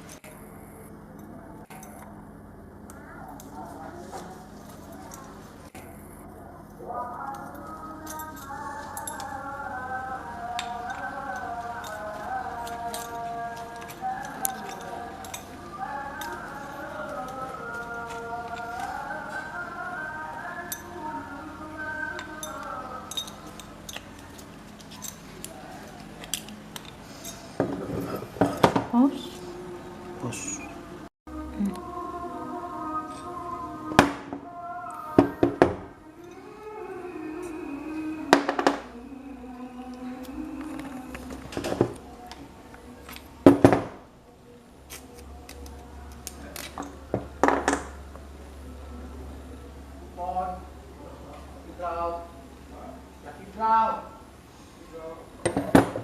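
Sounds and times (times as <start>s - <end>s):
small metal parts clinking: 7.3s - 9.4s, 10.6s - 19.0s, 22.2s - 28.0s.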